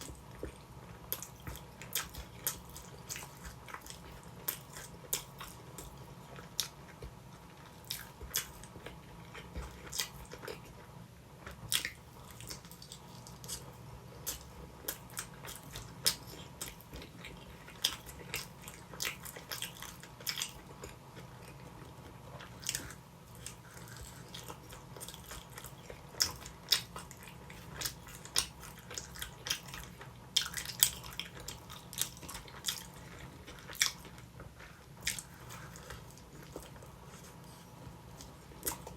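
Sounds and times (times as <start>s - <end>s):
chewing and biting pizza: 0.0s - 38.9s.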